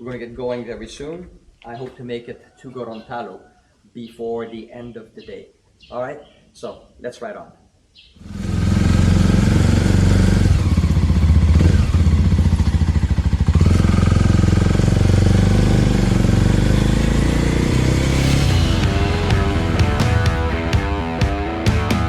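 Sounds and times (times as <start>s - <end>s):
motorcycle engine running: 8.3s - 22.0s
rush of air: 17.4s - 21.1s.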